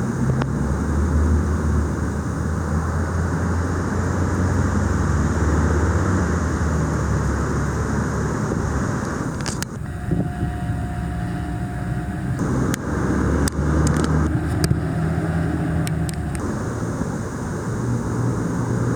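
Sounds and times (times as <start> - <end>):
steady low rumble: 6.5 - 18.9.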